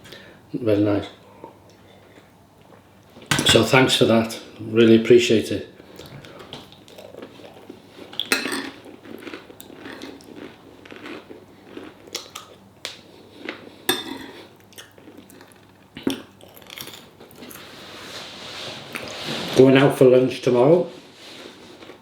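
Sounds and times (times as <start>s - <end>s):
person chewing and crunching food: 5.9s - 17.8s, 21.4s - 22.0s.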